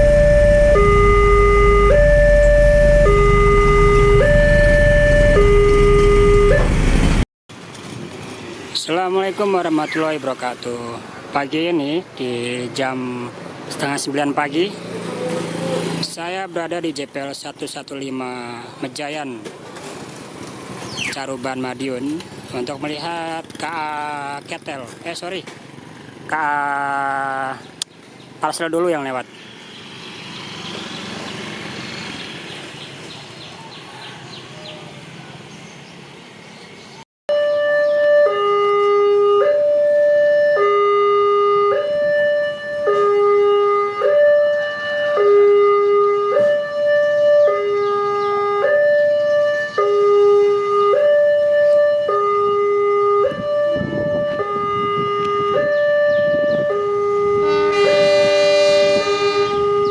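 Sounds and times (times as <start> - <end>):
horn chord: 0.0 - 7.2, 57.5 - 59.9
two-tone hi-lo siren wail: 0.0 - 7.2, 37.3 - 59.9.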